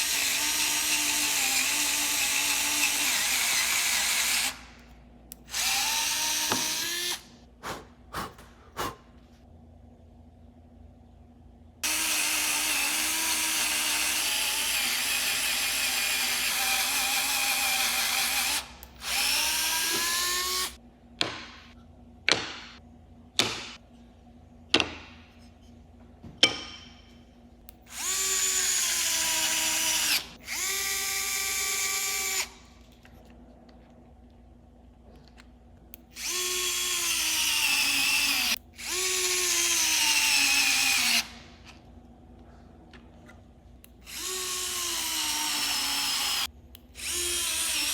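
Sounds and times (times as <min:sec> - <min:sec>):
electric screwdriver motor whirring: 0:11.8 - 0:20.8, 0:27.9 - 0:32.5, 0:44.1 - 0:47.9.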